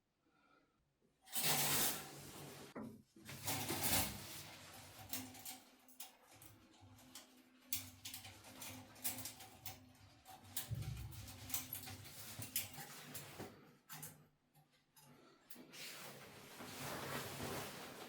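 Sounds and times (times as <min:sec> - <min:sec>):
items clicking and knocking: 0:05.0 - 0:13.3.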